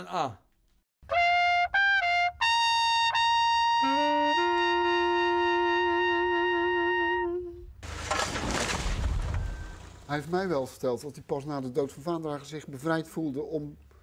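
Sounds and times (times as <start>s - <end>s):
trumpet playing: 1.0s - 7.8s
lower held brass note: 1.1s - 7.7s.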